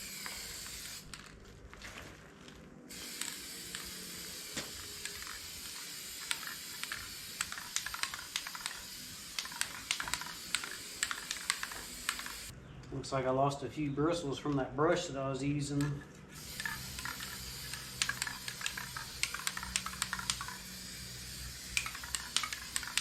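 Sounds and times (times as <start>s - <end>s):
aerosol spray paint hissing: 0.0s - 1.2s, 2.9s - 12.5s, 16.4s - 23.0s.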